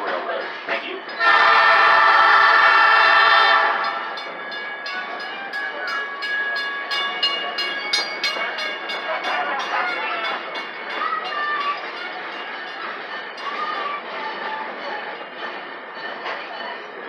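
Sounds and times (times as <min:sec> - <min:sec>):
locomotive horn blast: 0:01.2 - 0:04.1
train wheels clickety-clack: 0:03.8 - 0:17.0.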